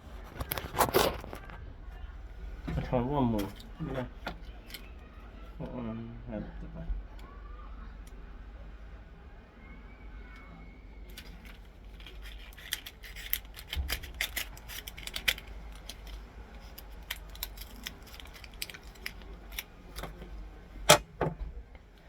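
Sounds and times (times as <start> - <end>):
toy gun clicks and scrapes: 11.1 - 20.2.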